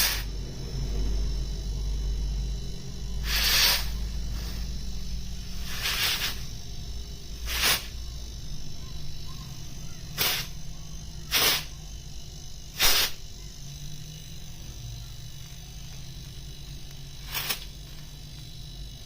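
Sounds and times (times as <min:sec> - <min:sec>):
short spray hisses: 0:00.0 - 0:00.3, 0:03.2 - 0:04.6, 0:05.6 - 0:06.5, 0:07.4 - 0:08.0, 0:10.2 - 0:10.5, 0:11.3 - 0:11.7, 0:12.8 - 0:13.2, 0:17.2 - 0:17.7.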